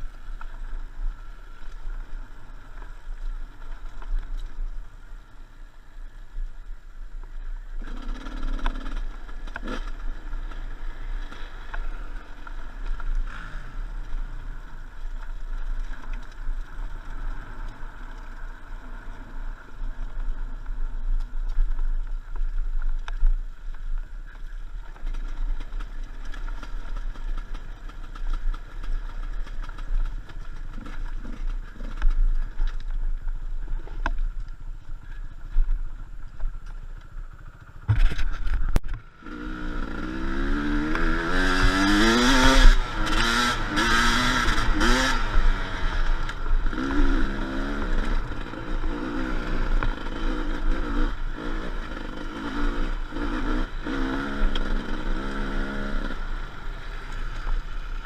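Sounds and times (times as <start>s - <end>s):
motorcycle engine revving: 7.7s - 15.8s, 37.2s - 58.0s.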